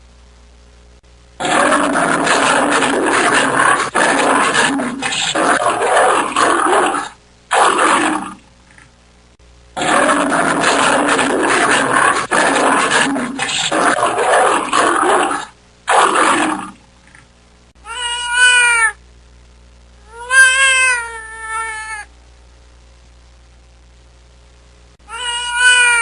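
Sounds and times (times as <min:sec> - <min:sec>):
rough animal roar: 0:01.4 - 0:08.4, 0:09.8 - 0:16.8
cat meowing: 0:17.8 - 0:19.0, 0:20.1 - 0:22.1, 0:25.1 - 0:26.0.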